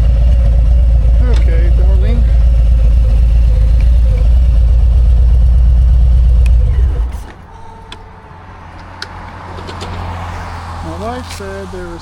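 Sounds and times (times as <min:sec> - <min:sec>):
motorcycle engine idling: 0:00.0 - 0:08.3.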